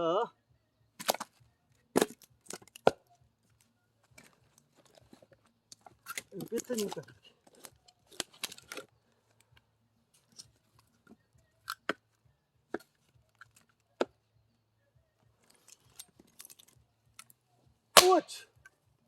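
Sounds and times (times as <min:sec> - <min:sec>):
firewood and axe knocking: 0:01.0 - 0:03.0, 0:18.0 - 0:18.4.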